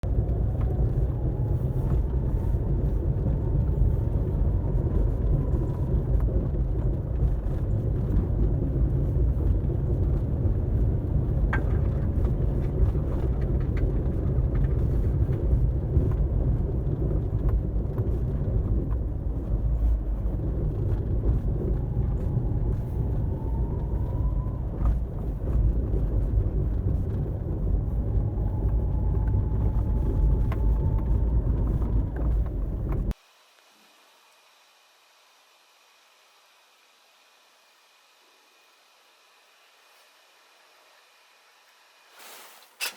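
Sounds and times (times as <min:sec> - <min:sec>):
small car engine and road rumble: 0:00.0 - 0:33.2
faint rising whine: 0:18.2 - 0:42.9.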